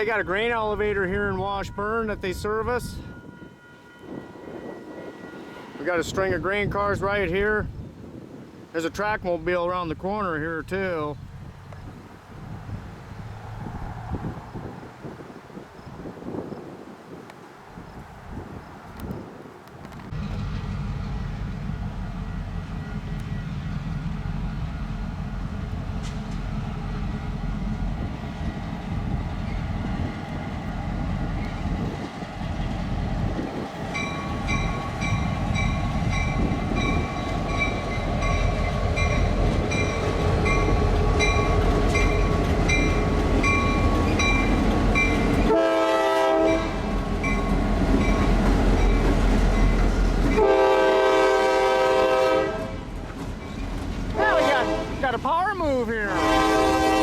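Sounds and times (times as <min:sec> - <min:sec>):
crossing bell ringing: 0:00.0 - 0:06.2, 0:33.9 - 0:45.6, 0:46.5 - 0:50.5
diesel locomotives rumbling: 0:00.0 - 0:57.0
locomotive horn blast: 0:45.4 - 0:46.9, 0:50.2 - 0:52.9, 0:54.1 - 0:55.2, 0:56.1 - 0:57.0.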